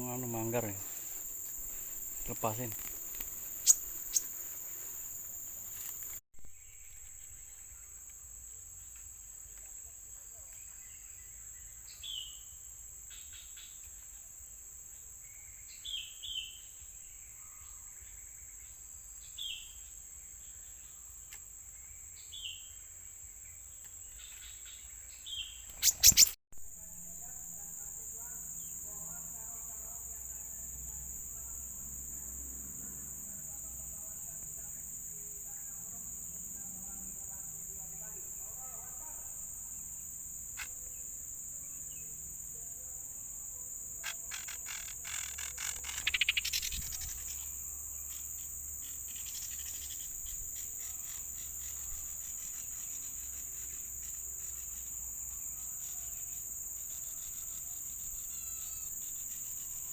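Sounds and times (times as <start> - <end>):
small bird chirping: 0.0 - 8.2, 23.5 - 26.4, 44.0 - 54.9
insects droning: 0.0 - 59.9.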